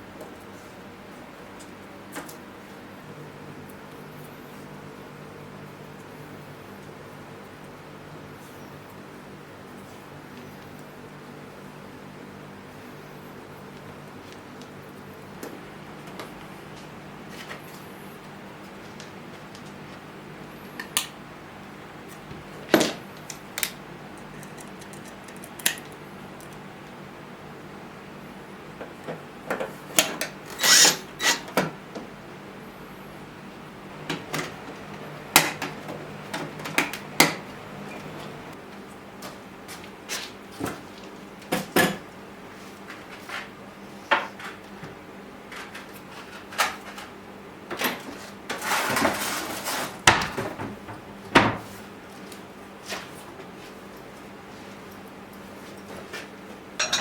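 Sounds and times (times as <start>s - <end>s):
faint steady hum: 0.0s - 48.5s
scraping rustle: 48.1s - 50.0s
tools clattering on hard surface: 56.8s - 57.0s.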